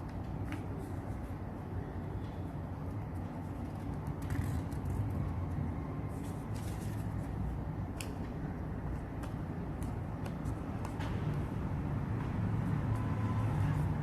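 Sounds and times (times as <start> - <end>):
paper crackling and clicking: 3.1 - 8.2.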